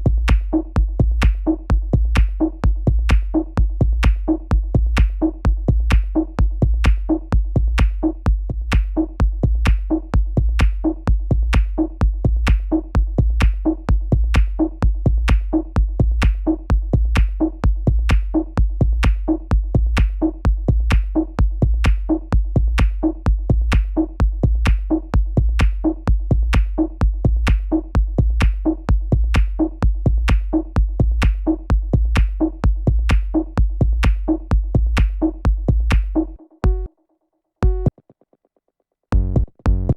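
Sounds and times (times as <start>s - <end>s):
deep bass: 0.0s - 36.9s, 37.6s - 37.9s, 39.1s - 39.9s
drum machine beat: 0.0s - 36.9s, 37.6s - 37.9s, 39.1s - 39.9s.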